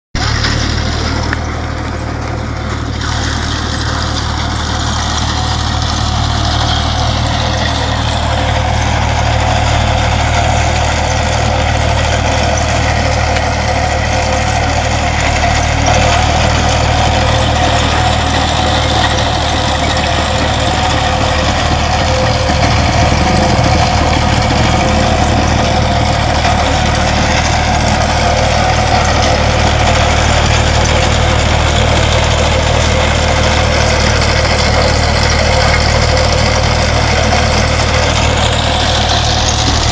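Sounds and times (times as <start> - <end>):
excavator engine droning: 0.2 - 39.9.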